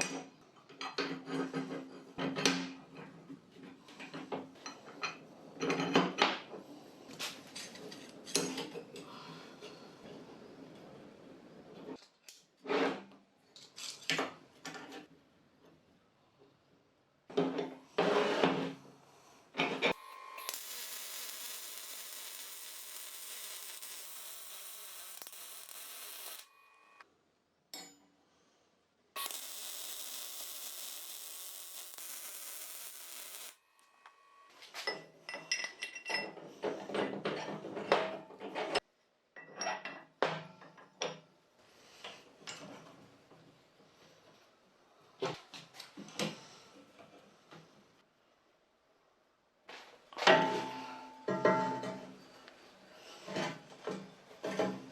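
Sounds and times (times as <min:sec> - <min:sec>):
steady hiss: 0:20.4 - 0:26.5.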